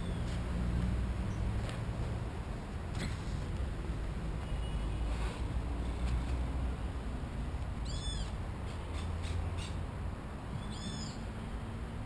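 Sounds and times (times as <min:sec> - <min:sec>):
bird calling: 0:07.8 - 0:09.8, 0:10.5 - 0:11.2.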